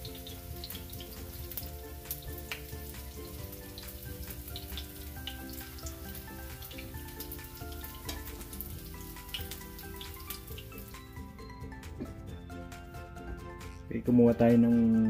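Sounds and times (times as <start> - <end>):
tofu sizzling in hot oil: 0.0 - 12.0
background music: 0.0 - 15.0.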